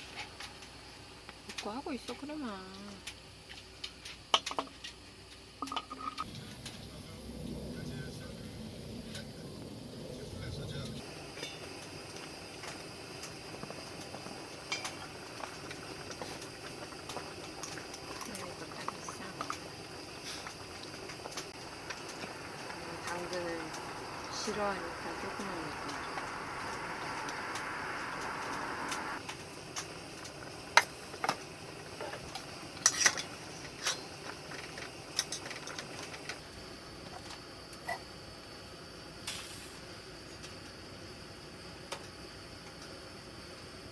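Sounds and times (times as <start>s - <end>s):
steady hiss: 0.0s - 43.9s
cookware and utensils clinking: 5.6s - 6.2s.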